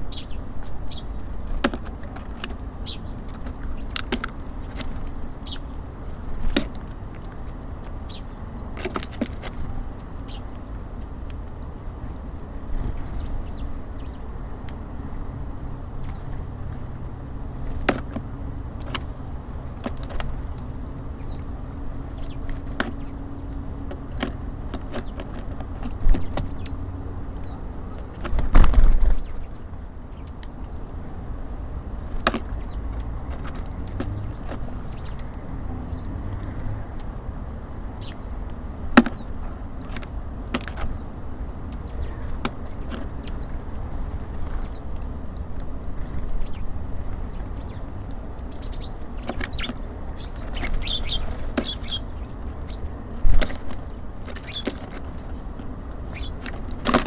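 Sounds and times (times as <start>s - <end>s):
city traffic hum: 0.0s - 57.0s
birds tapping at a feeder: 0.1s - 14.9s, 15.6s - 57.0s
faint bird chirps: 48.5s - 52.9s.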